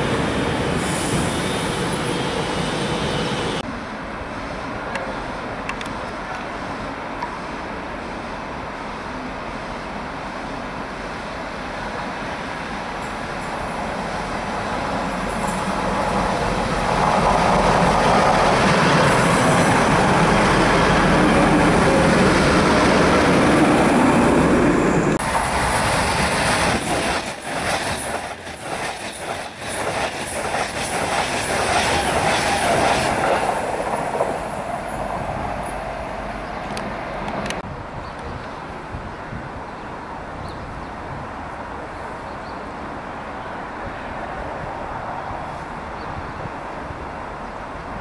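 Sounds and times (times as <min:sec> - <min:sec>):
diesel train passing: 0:00.0 - 0:37.9
express train passing at speed: 0:00.0 - 0:48.0.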